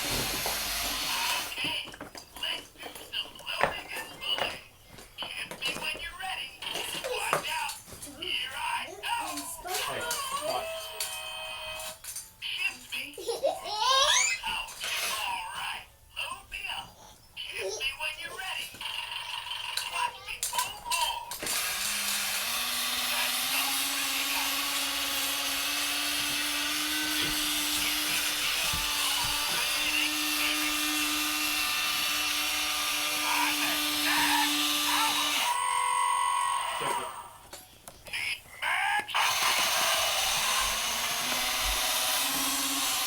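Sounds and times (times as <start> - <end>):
small electric motor whining: 0.0 - 1.6, 10.0 - 12.0, 21.4 - 37.4, 39.2 - 43.0.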